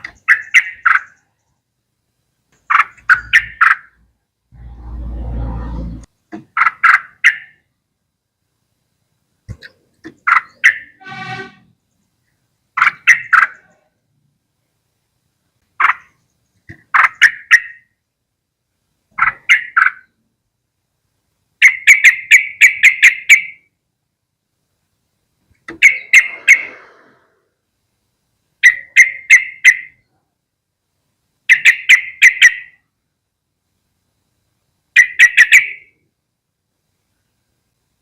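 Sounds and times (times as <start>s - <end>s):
bird calling with chattering notes: 0.0s - 1.7s, 2.5s - 4.0s, 6.4s - 7.7s, 9.5s - 14.0s, 15.8s - 18.0s, 19.1s - 20.2s, 21.6s - 23.7s, 25.6s - 27.2s, 28.6s - 30.1s, 31.5s - 32.8s, 34.9s - 36.0s.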